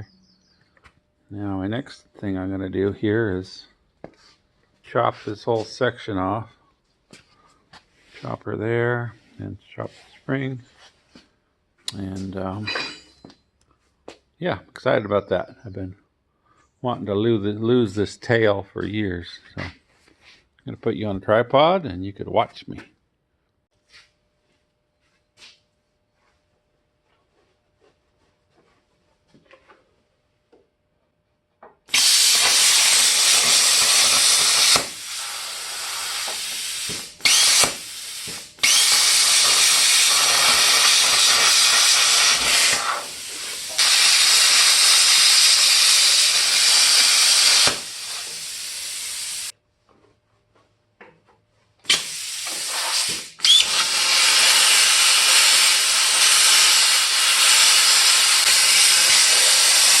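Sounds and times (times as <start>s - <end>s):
power tool cutting steel: 31.9s - 49.5s, 51.9s - 60.0s.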